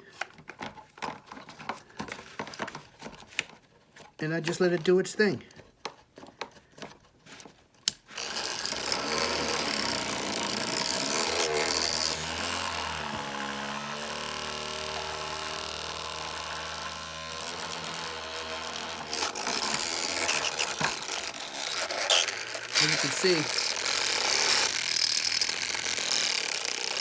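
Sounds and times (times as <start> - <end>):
electric herb grinder grinding: 8.0 - 27.0.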